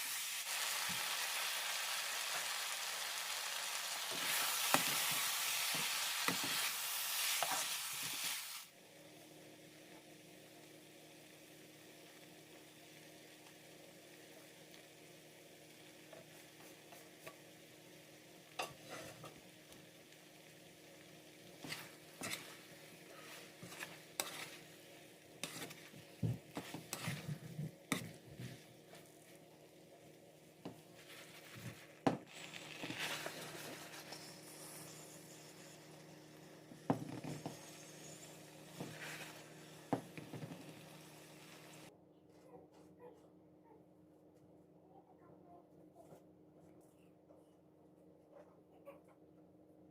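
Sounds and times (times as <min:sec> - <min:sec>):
faint sizzle: 0:00.0 - 0:41.9
utensil stirring and scraping a pan: 0:04.0 - 0:08.6, 0:18.5 - 0:19.8, 0:21.4 - 0:29.4, 0:30.6 - 0:41.9.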